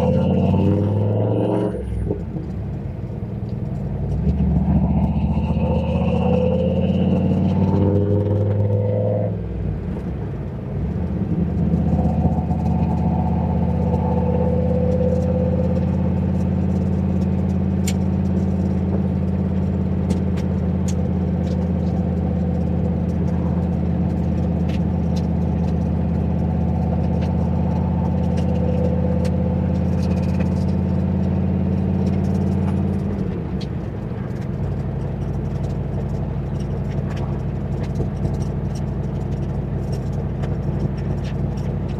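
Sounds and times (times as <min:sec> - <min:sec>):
car engine cruising: 0:00.0 - 0:41.9.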